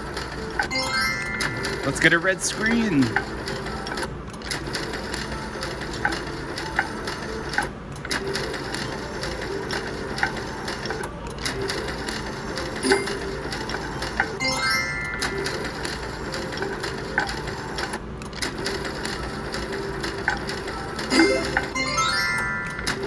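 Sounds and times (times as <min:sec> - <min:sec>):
slot machine clicking and blips: 0:00.0 - 0:23.0
chime tones: 0:00.7 - 0:02.4, 0:14.4 - 0:15.7, 0:21.1 - 0:23.0.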